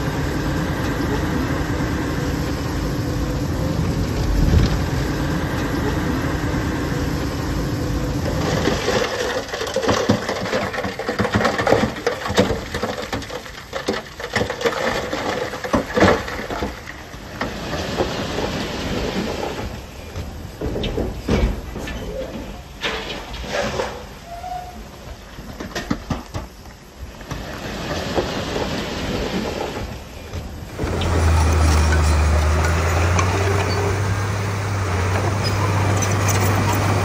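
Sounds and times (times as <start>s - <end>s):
diesel engine running: 0.0s - 9.6s, 30.2s - 37.0s.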